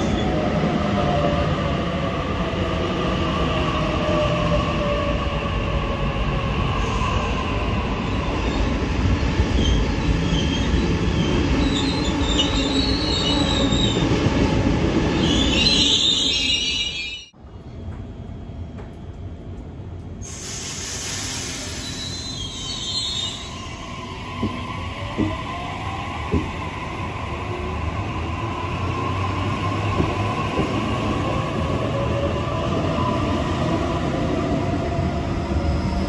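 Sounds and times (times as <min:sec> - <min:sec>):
train wheel and rail rumble: 0:00.0 - 0:36.0
high wheel squeal: 0:21.6 - 0:23.8.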